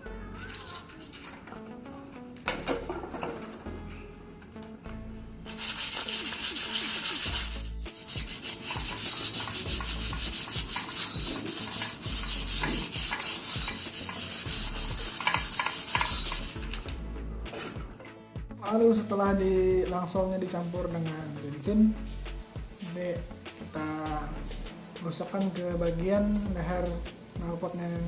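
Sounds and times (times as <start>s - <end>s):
sandpaper rubbing on metal pipe: 0.4s - 1.4s, 5.5s - 16.8s.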